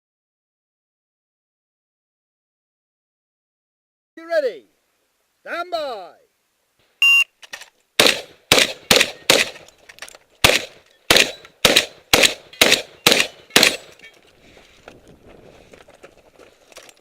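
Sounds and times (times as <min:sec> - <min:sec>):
shot timer beep: 0:07.0 - 0:07.3
shotgun shots: 0:08.0 - 0:09.7, 0:10.4 - 0:14.0.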